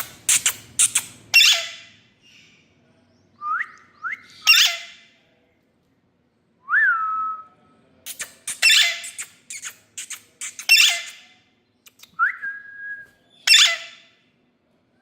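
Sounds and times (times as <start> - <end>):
parakeet squawks: 0.0 - 1.9, 4.4 - 5.0, 8.1 - 11.2, 13.5 - 14.0.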